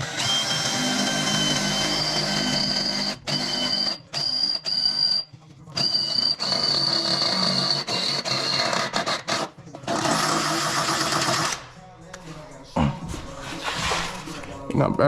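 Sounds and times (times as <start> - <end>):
power drill motor whining: 0.0 - 5.2, 5.8 - 11.6.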